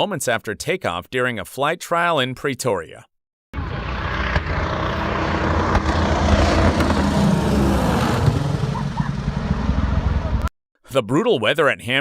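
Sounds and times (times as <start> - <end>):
propeller aircraft engines droning: 3.6 - 10.4.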